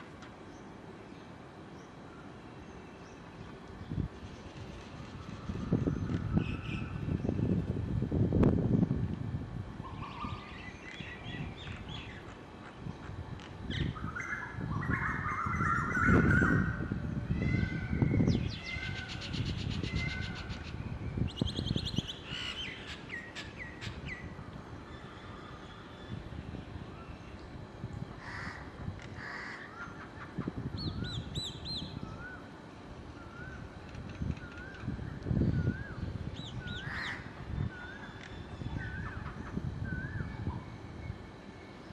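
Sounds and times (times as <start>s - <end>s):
crows cawing: 28.2s - 29.9s, 36.8s - 37.3s.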